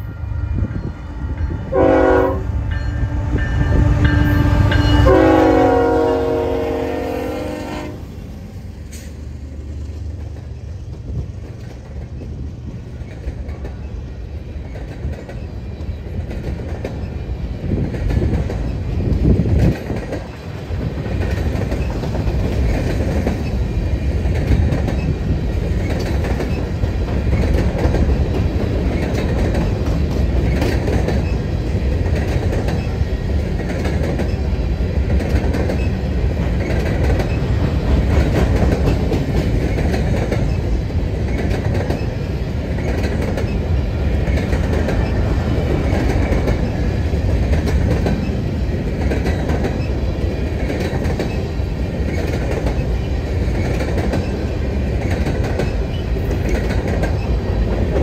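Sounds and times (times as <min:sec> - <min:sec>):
locomotive air horn blasts: 0:00.0 - 0:08.1
train rumbling past: 0:00.0 - 0:58.0.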